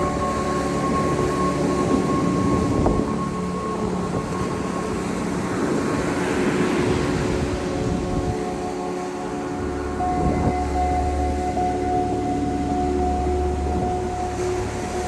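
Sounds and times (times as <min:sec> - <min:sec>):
hum of held tones: 0:00.0 - 0:06.4, 0:07.9 - 0:15.0
wind buffeting microphone: 0:00.0 - 0:10.7.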